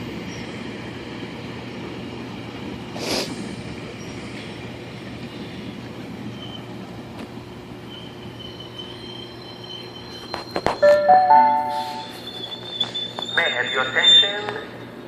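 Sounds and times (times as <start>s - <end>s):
train rumbling past: 0.0s - 15.0s
high-pitched wheel squeal: 7.8s - 13.9s.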